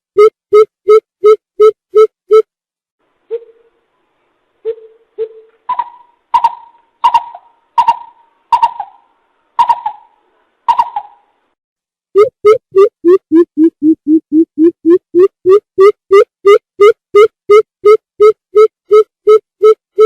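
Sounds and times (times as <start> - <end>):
bird hooting: 3.3 - 3.8, 4.7 - 11.2.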